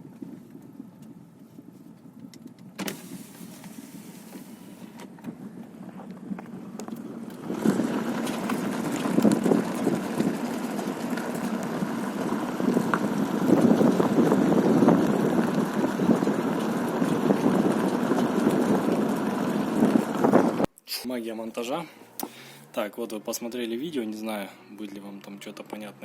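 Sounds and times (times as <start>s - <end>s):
road and tyre noise: 0.0s - 26.0s.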